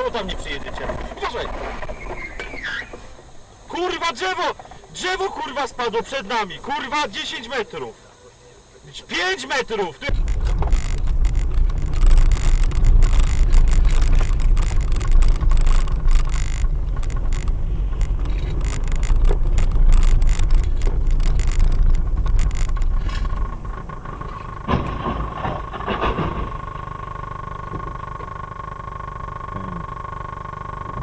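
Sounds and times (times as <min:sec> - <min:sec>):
steady mid-pitched tone: 0:10.0 - 0:24.7
knocks and rattles: 0:10.1 - 0:26.9
vehicle rumbling: 0:10.1 - 0:31.0.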